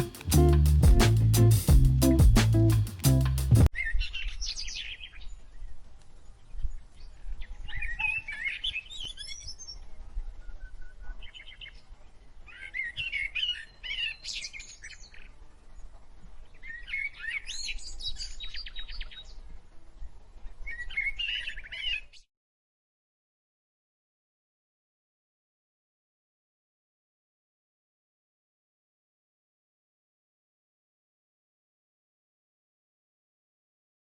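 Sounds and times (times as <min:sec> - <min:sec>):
birds chirping and trilling: 0:03.7 - 0:05.8, 0:06.5 - 0:19.4, 0:20.4 - 0:22.2.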